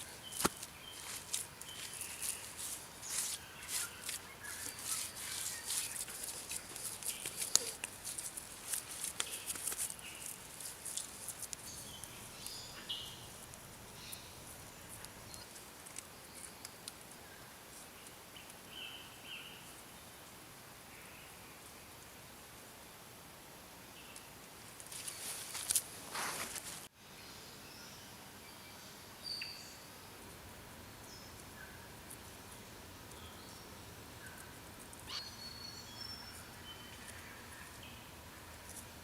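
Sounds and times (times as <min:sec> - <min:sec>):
small scrapes and clicks: 0:00.2 - 0:12.6, 0:24.8 - 0:26.9.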